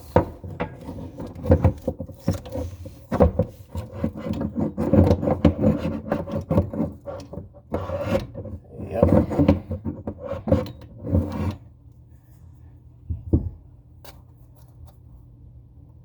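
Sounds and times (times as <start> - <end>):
wrench scraping and knocking on fittings: 0.0 - 11.7.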